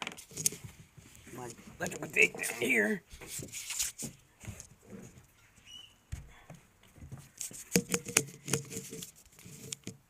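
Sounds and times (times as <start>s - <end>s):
soft rustles and taps: 0.0s - 2.3s, 3.1s - 10.0s
sharp clicks and knocks: 7.0s - 10.0s.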